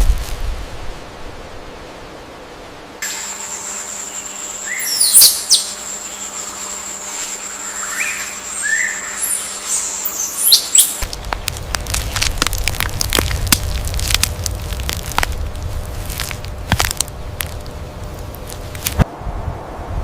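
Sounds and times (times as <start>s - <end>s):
steady high-pitched whine: 3.0s - 20.0s
birds chirping and calling: 4.3s - 6.3s, 7.5s - 11.0s.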